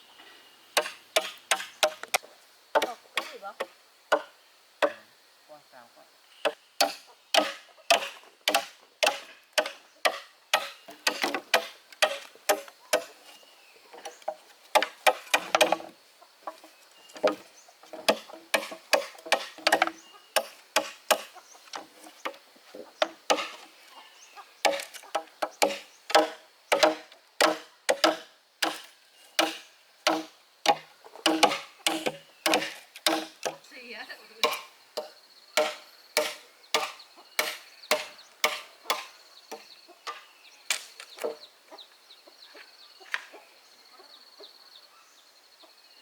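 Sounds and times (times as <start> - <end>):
blade chopping into wood: 24.7 - 33.6, 34.4 - 39.1.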